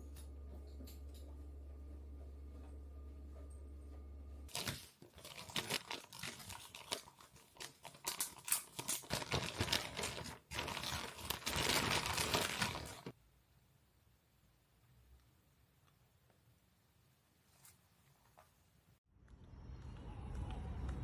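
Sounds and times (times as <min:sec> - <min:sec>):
plastic or paper crinkling: 0:04.5 - 0:13.2.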